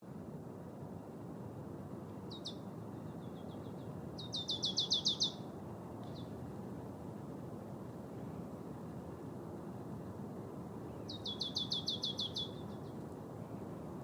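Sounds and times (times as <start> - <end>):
marsh tit singing: 4.2 - 5.4, 11.0 - 12.8.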